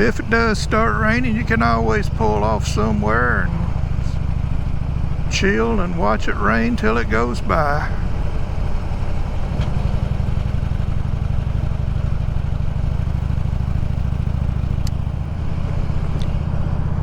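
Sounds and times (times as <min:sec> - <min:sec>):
motorcycle engine running: 0:00.0 - 0:17.0
wind and road noise: 0:00.0 - 0:17.0.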